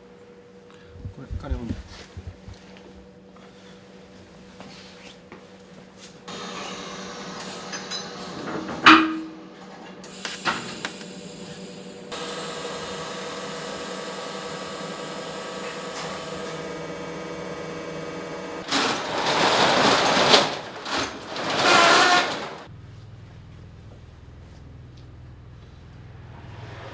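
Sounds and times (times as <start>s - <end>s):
loud rough noise: 18.6s - 22.7s
metal clank: 18.6s - 22.7s.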